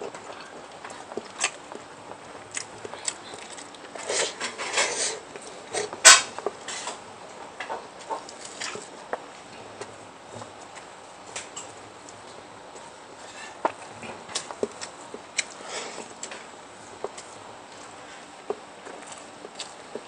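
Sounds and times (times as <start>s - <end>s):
chewing and biting: 0.0s - 4.1s, 17.0s - 20.0s.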